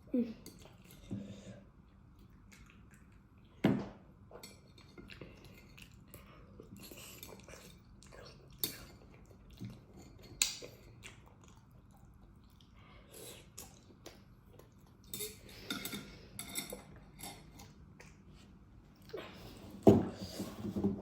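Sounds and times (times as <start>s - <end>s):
chewing: 1.8s - 3.6s, 4.4s - 19.4s.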